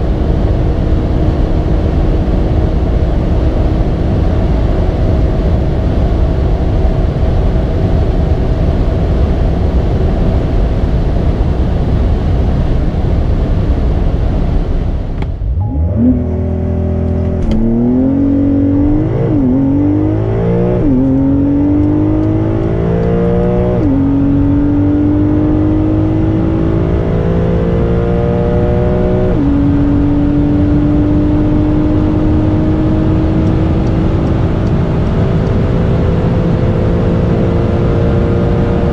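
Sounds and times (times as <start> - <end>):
car engine accelerating with upshifts: 0.0 - 38.9
road noise: 0.0 - 38.9.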